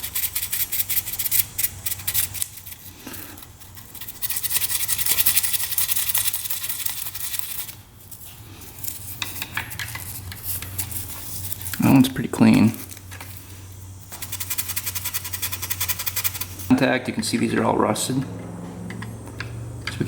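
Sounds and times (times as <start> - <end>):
sandpaper scratching metal: 0.0 - 7.8, 8.8 - 13.0, 14.0 - 16.7.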